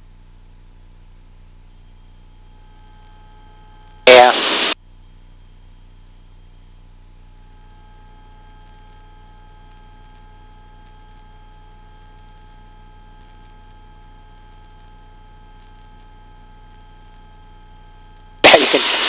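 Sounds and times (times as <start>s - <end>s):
high-pitched electronic whine: 1.7s - 4.8s, 6.5s - 19.0s.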